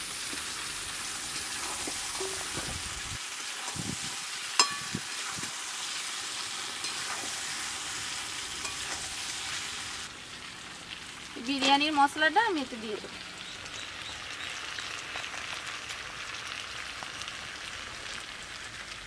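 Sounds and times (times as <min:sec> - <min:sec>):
food sizzling in oil: 0:00.0 - 0:19.0
metal spatula scraping pot: 0:01.4 - 0:02.6, 0:06.7 - 0:07.7, 0:08.6 - 0:09.2
metal clink: 0:04.6 - 0:05.0.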